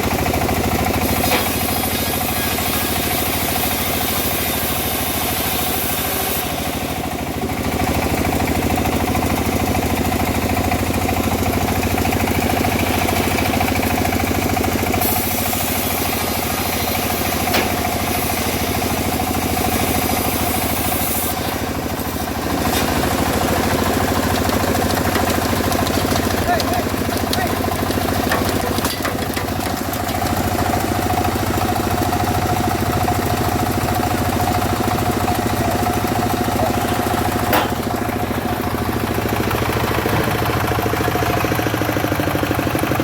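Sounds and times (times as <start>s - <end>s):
saw blade hissing: 1.0s - 6.7s, 15.0s - 22.2s, 36.4s - 38.1s
engine humming: 6.8s - 43.0s.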